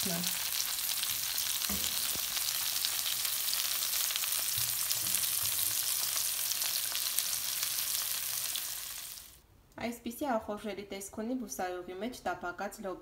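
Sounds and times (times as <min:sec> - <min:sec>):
beans sizzling in oil: 0:00.0 - 0:09.4.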